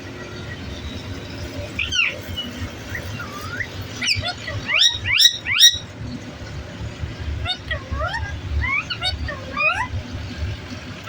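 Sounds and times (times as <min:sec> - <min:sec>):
parrot whistle-like calls: 0:01.6 - 0:05.9, 0:07.4 - 0:10.0.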